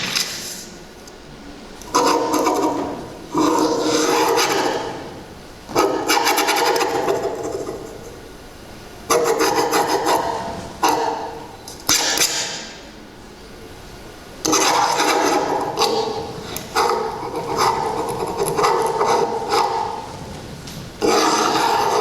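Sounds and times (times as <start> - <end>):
rasping scraping sounds: 14.5 - 22.0.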